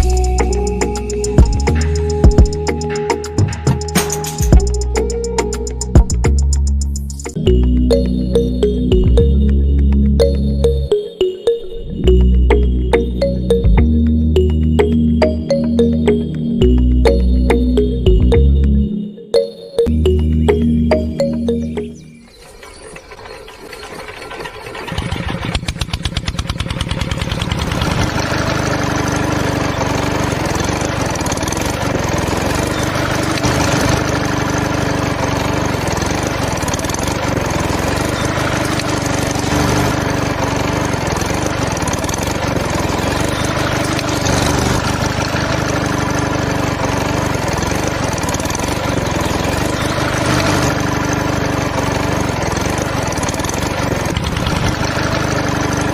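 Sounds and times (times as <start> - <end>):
small engine starting up: 0.0 - 9.3, 20.9 - 55.9.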